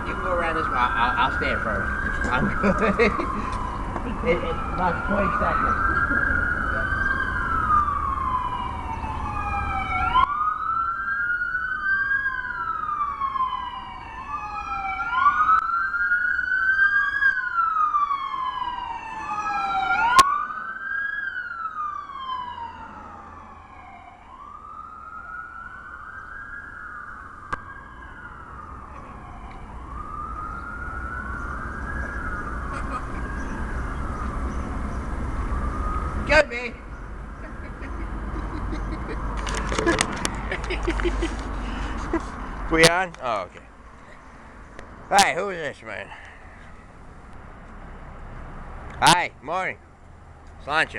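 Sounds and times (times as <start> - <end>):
siren wailing: 0.0 - 39.8.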